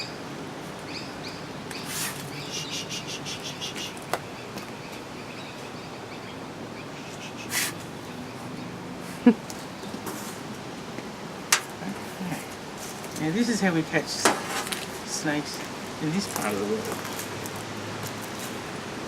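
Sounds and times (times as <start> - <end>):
small birds chirping: 0.0 - 10.4
hissy bursts: 1.8 - 3.6, 7.0 - 7.9.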